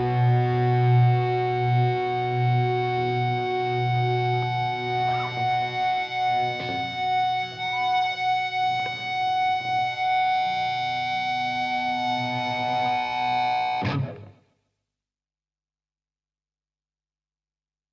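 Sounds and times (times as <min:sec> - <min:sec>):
steady drone: 0:00.0 - 0:14.0
electric guitar with effects: 0:00.0 - 0:14.4.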